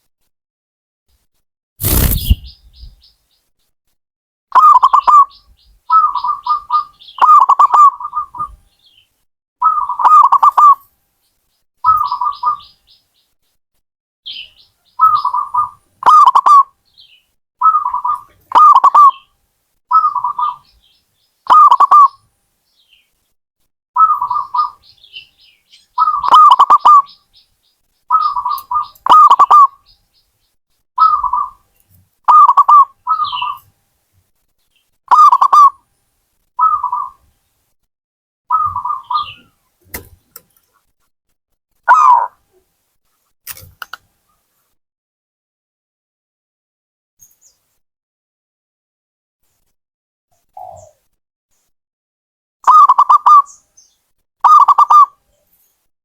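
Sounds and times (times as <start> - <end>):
dove cooing: 5.9 - 8.5, 32.3 - 33.5, 35.1 - 35.7, 54.4 - 55.1.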